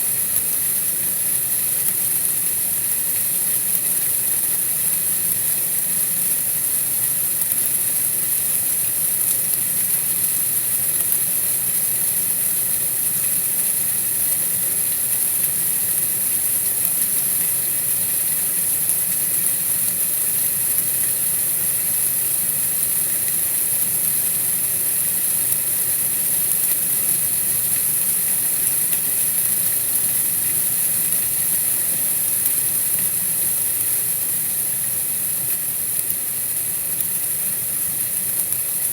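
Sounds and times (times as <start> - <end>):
steady hiss: 0.0 - 38.9.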